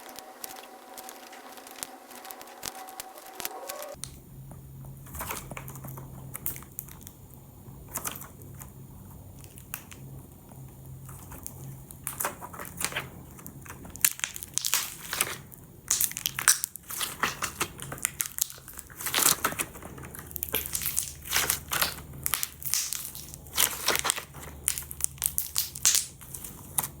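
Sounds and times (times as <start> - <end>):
fireworks popping and crackling: 0.0 - 4.2.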